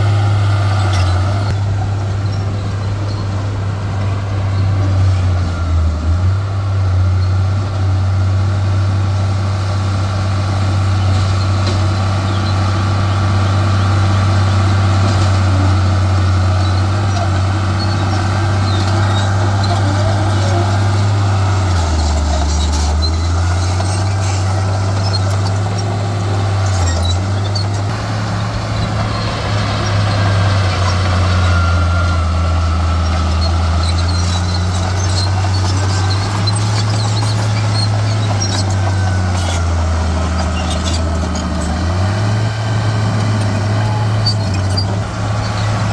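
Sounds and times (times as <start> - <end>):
heavy diesel engine droning: 0.0 - 45.9
faint high squeaks and clicks: 16.6 - 26.0, 26.6 - 27.9, 33.0 - 41.8, 43.3 - 45.8.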